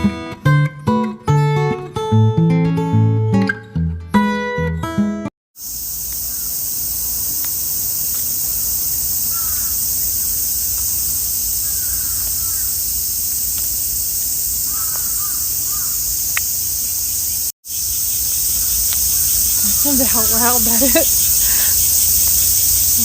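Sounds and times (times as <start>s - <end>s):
cicadas droning: 5.6s - 23.0s
crow cawing: 6.2s - 6.6s, 9.2s - 12.9s, 14.6s - 16.2s, 18.5s - 20.4s, 21.1s - 21.9s.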